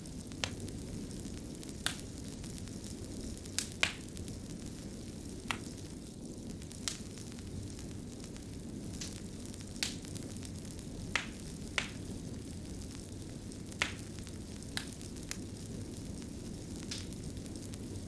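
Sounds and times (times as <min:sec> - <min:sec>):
fire crackling: 0:00.0 - 0:18.0
sharp pops from fire: 0:00.0 - 0:18.0.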